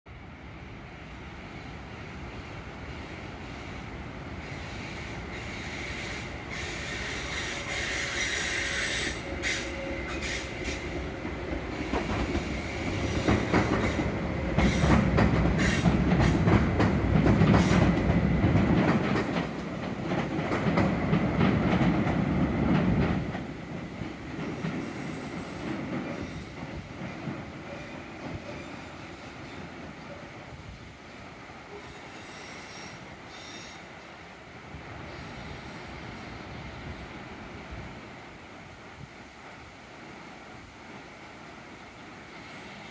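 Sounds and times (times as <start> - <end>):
train high whine: 0.1 - 42.9
train heavy rumble on bridge: 1.2 - 34.0.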